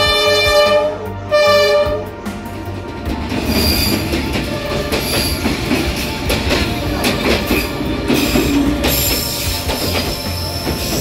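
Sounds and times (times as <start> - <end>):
diesel train rumbling: 0.0 - 11.0
high wheel squeal: 7.4 - 11.0.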